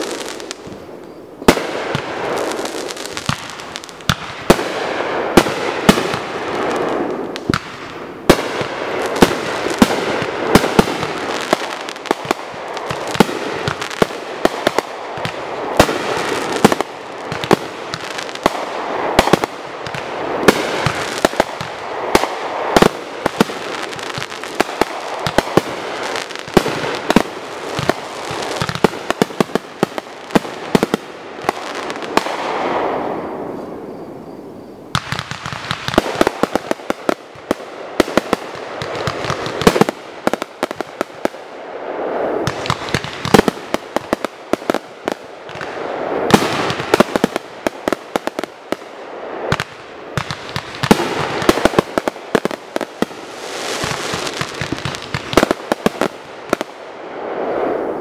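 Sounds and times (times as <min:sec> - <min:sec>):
firework bangs: 0:00.0 - 0:33.9, 0:34.9 - 0:58.0.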